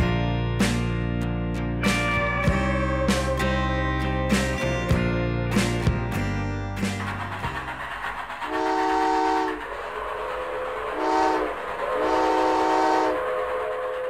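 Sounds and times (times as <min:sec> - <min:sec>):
train horn chord blasts: 0:08.5 - 0:09.6, 0:10.9 - 0:13.4.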